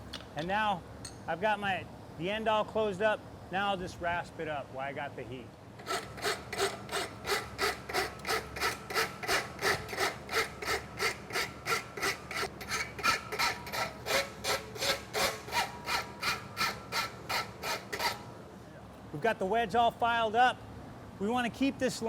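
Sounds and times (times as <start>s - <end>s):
rasp filing metal: 5.8s - 18.3s.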